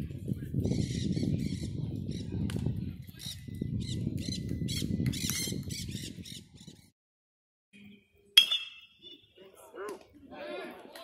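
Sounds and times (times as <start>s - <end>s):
wind rumbling on microphone: 0.0s - 6.9s.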